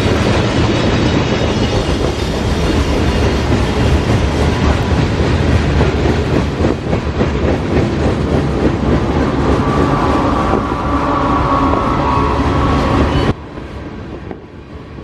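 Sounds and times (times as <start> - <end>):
wheels clacking over rail joints: 0.0 - 10.9
freight cars rolling past: 2.1 - 14.5
high wheel squeal: 8.6 - 13.6.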